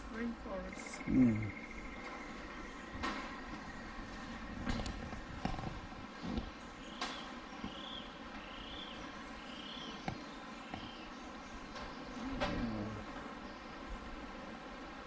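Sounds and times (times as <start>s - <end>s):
steady rainforest hiss: 0.0s - 15.0s
bird calling: 0.2s - 4.5s.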